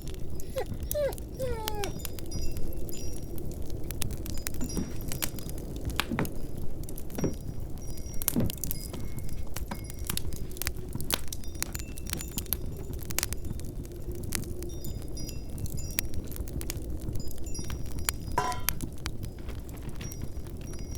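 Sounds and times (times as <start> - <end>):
low wind: 0.0 - 20.9
wood fire crackling: 0.0 - 20.9
light clinks: 17.1 - 20.9.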